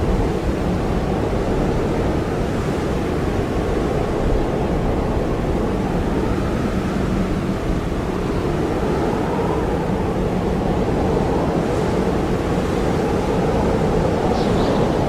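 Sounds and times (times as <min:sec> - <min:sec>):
blizzard wind blowing hard: 0:00.0 - 0:15.0.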